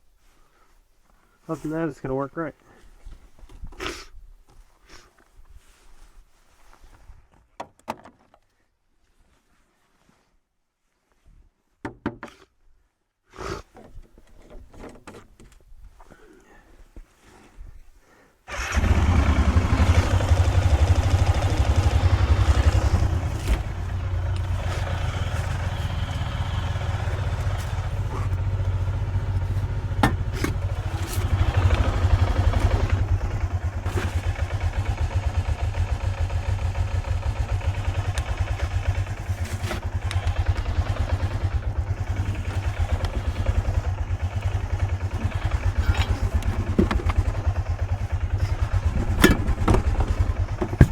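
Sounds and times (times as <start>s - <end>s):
van engine idling: 18.5s - 50.9s.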